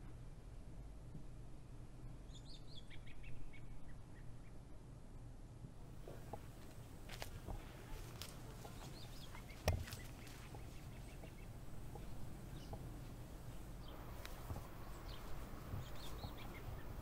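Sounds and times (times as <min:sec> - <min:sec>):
footsteps on sandy path: 0:06.0 - 0:17.0
faint bird chirps: 0:07.7 - 0:17.0.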